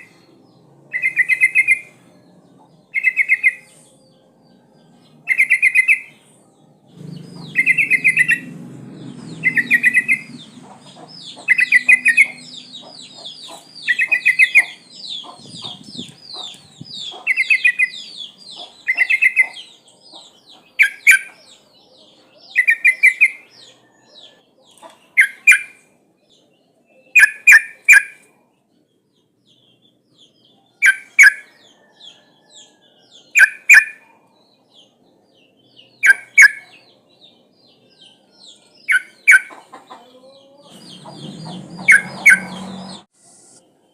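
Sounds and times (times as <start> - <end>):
high descending bird chirps: 6.9 - 16.5, 40.8 - 43.1
bulbul calling: 9.4 - 19.7, 36.0 - 36.8, 38.9 - 40.0, 40.7 - 43.0.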